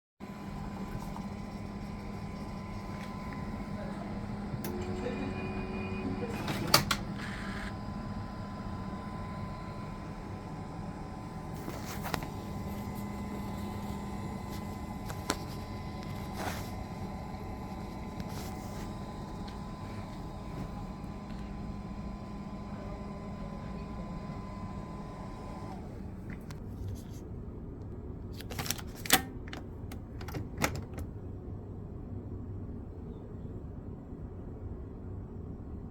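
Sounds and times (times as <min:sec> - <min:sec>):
coffee machine humming: 0:00.2 - 0:26.6.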